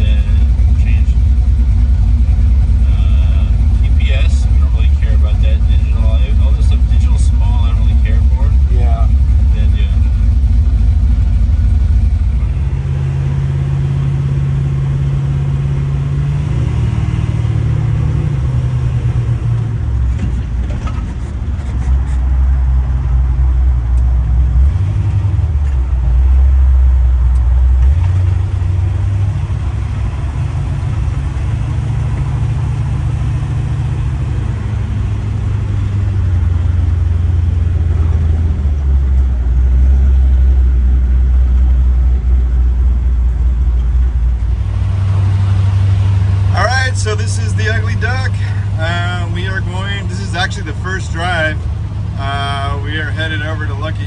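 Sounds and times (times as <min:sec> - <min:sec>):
car engine droning: 0:00.0 - 0:54.0.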